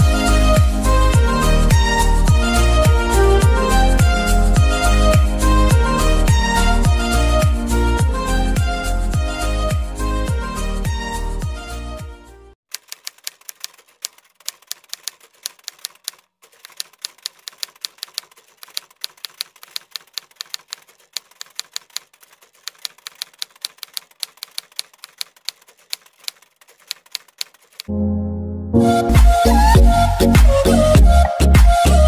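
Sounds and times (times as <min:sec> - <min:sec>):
background music: 0:00.0 - 0:12.6, 0:27.9 - 0:32.0
typewriter key clacks: 0:12.7 - 0:27.9.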